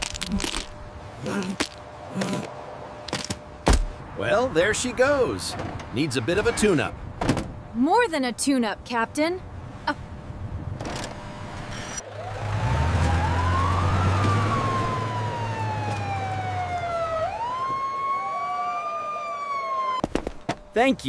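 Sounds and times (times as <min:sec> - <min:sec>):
siren wailing: 0:12.0 - 0:20.0.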